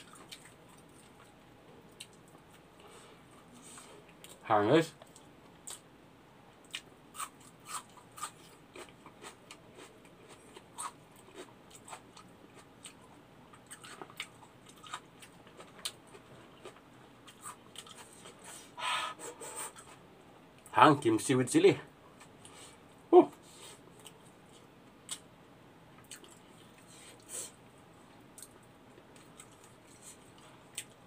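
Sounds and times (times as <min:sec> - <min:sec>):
person chewing food: 0:00.0 - 0:04.4, 0:06.6 - 0:20.0, 0:23.8 - 0:25.3, 0:26.0 - 0:27.3, 0:28.3 - 0:31.0
breathy noise: 0:18.4 - 0:19.8.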